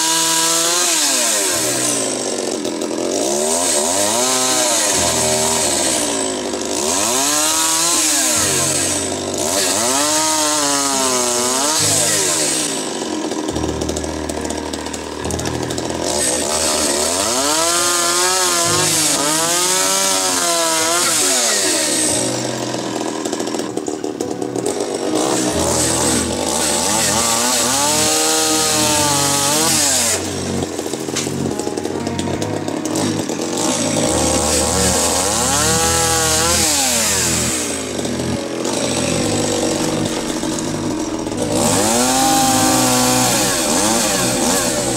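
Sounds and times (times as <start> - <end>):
small petrol engine labouring: 0.0 - 44.9
hiss of cutting wood: 16.2 - 22.4.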